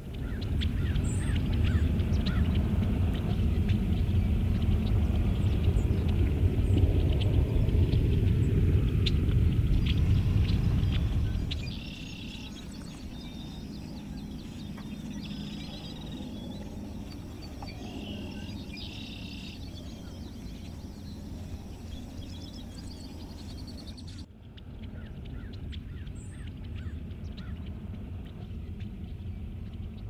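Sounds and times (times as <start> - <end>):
birds trilled calls: 0.0 - 30.0
low rumble: 0.0 - 30.0.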